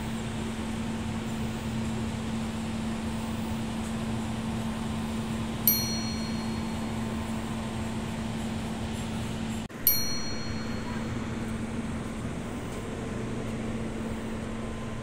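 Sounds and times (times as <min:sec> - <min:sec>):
train hum and rushing: 0:00.0 - 0:15.0
sharp metallic ding: 0:05.6 - 0:07.4, 0:09.8 - 0:11.6.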